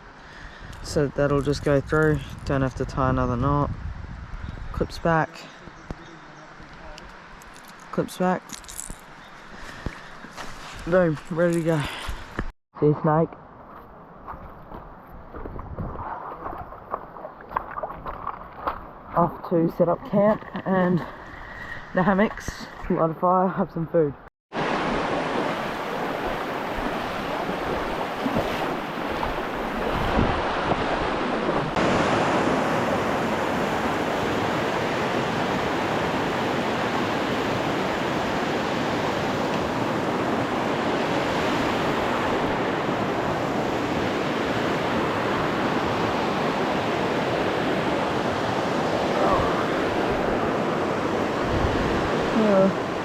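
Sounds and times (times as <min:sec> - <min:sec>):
fast-flowing creek water: 0:24.5 - 0:53.0.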